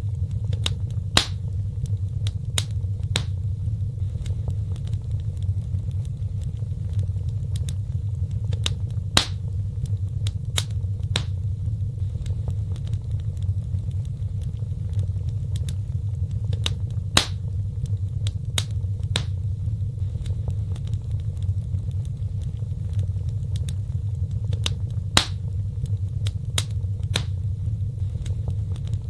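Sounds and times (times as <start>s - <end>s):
low rumble of burning: 0.0s - 29.0s
wood fire crackling and popping: 0.0s - 29.0s.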